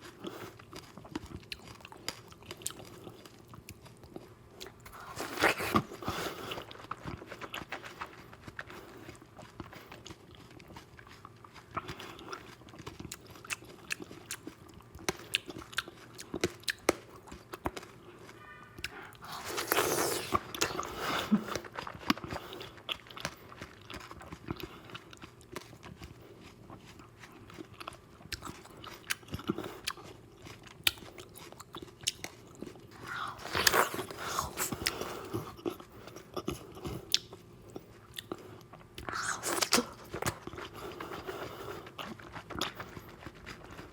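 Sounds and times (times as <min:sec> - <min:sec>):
wet chewing and mouth clicks: 0:00.0 - 0:43.9.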